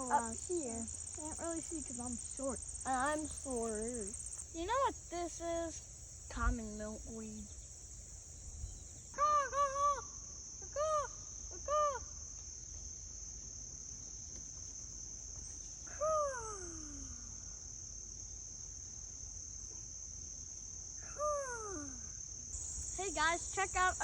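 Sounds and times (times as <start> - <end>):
crickets droning: 0.0 - 24.0.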